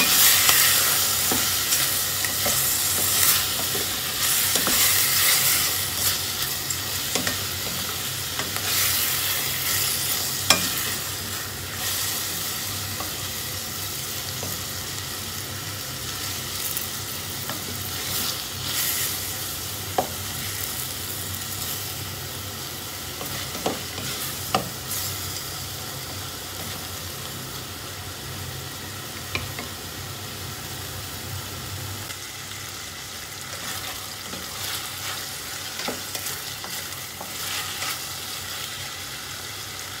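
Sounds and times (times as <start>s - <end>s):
chicken and onion sizzling: 0.0s - 40.0s.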